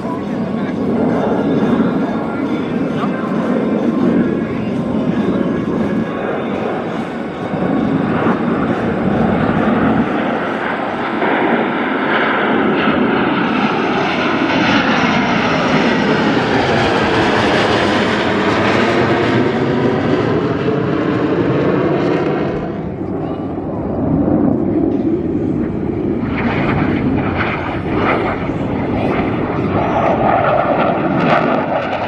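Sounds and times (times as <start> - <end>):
jet roar flying past: 0.0 - 32.0.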